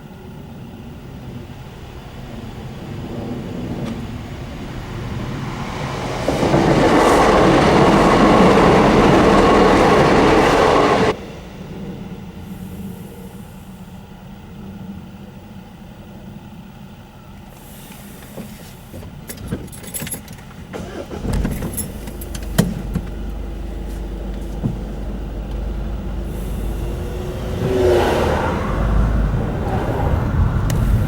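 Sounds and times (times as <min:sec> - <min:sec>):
vehicle engines rumbling: 0:00.0 - 0:31.0
sharp clicks and knocks: 0:19.0 - 0:25.7
vehicle passing close: 0:20.8 - 0:31.0.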